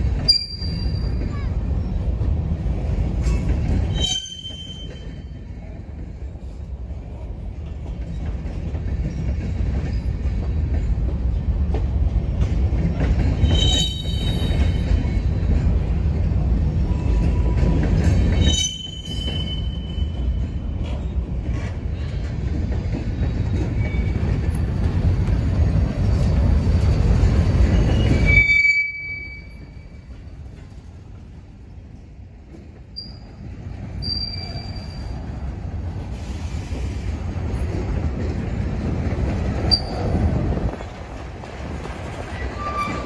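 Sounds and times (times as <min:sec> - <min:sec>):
freight train wheels rumbling: 0:00.0 - 0:43.0
high-pitched wheel squeals: 0:00.3 - 0:01.3, 0:03.9 - 0:05.3, 0:13.4 - 0:14.8, 0:18.4 - 0:20.2, 0:27.7 - 0:29.8, 0:34.0 - 0:35.2, 0:39.7 - 0:40.2, 0:42.6 - 0:43.0.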